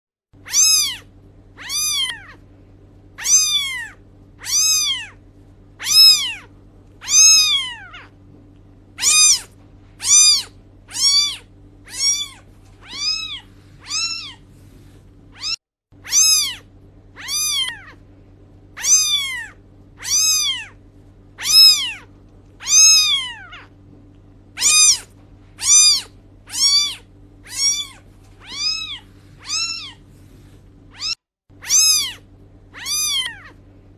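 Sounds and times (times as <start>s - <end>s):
cat meowing: 0.4s - 2.4s, 3.2s - 5.2s, 5.8s - 8.2s, 9.0s - 14.4s, 15.3s - 18.0s, 18.8s - 20.8s, 21.4s - 23.7s, 24.6s - 30.0s, 30.9s - 33.6s
steady low hum: 0.4s - 33.9s.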